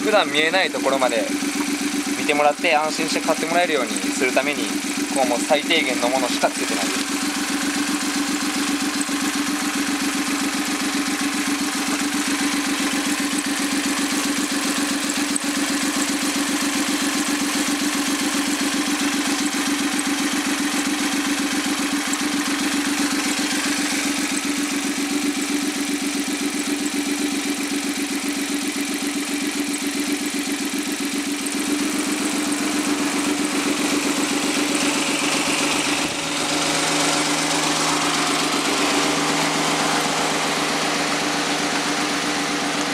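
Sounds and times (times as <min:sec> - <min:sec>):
three-cylinder engine idling: 0:00.0 - 0:42.9.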